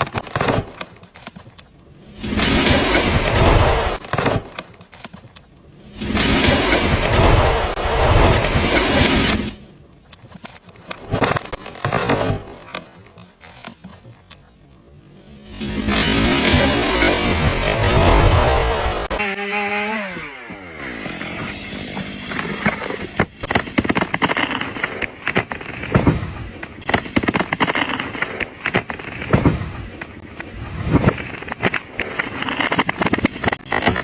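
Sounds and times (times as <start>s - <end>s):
sharp cracks and snaps: 0.0s - 7.6s, 8.2s - 14.5s, 22.3s - 34.0s.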